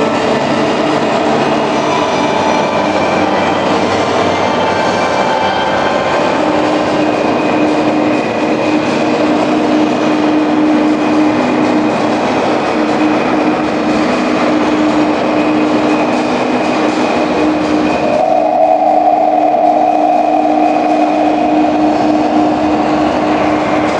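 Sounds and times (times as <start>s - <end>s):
loud mechanical running noise: 0.0s - 23.9s
held low hum: 16.8s - 23.9s.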